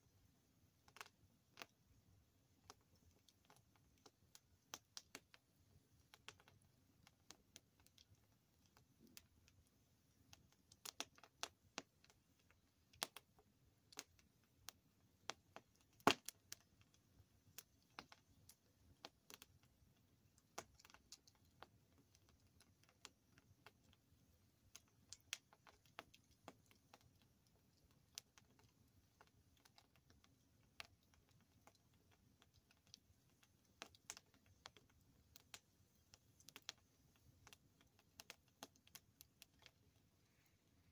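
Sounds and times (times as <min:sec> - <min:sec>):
wood crackling and popping: 0:00.8 - 0:40.9.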